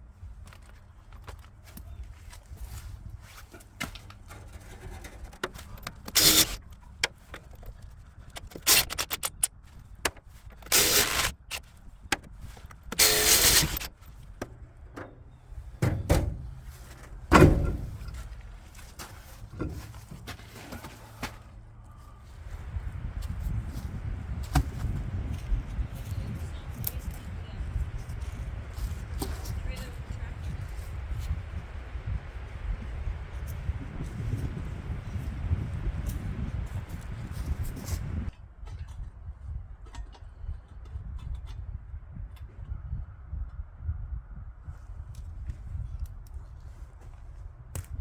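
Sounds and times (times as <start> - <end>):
knocks and clicks of tools: 4.9 - 18.2
loud scraping bursts: 5.2 - 14.0.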